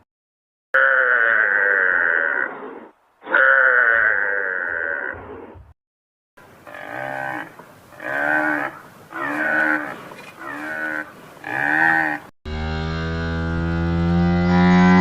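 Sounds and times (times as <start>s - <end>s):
large animal calling: 0.8s - 5.6s, 6.6s - 12.3s.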